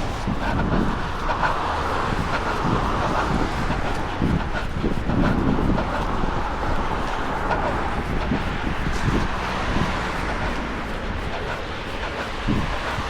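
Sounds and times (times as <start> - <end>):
passing car traffic: 0.0 - 13.0
wind on microphone: 0.0 - 13.0.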